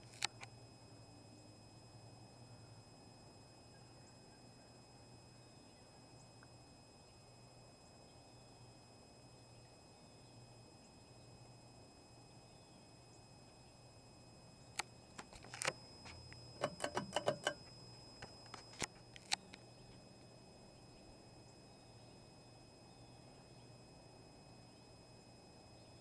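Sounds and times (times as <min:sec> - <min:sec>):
sharp clicks and light rattles: 0:00.0 - 0:00.5, 0:14.7 - 0:20.0
ceiling fan humming: 0:00.0 - 0:26.0.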